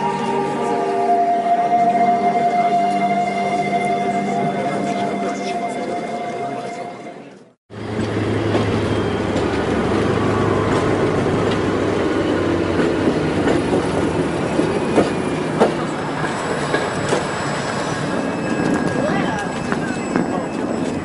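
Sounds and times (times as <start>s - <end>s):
diesel locomotive engine hum: 0.0s - 21.0s
train wheels rumbling: 7.7s - 21.0s.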